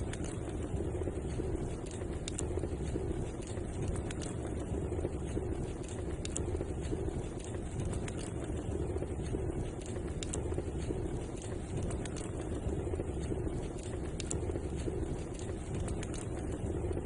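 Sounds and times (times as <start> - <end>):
fire crackling and popping: 0.0 - 17.0
wood fire burning: 0.0 - 17.0.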